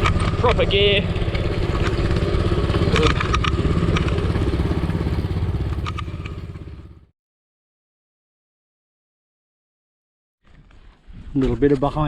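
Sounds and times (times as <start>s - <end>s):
small engine idling: 0.0s - 7.1s.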